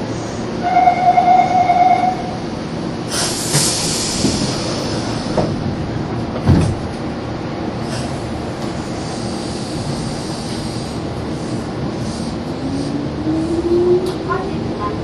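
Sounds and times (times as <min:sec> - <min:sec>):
air hissing: 0:03.1 - 0:05.6, 0:07.8 - 0:13.5.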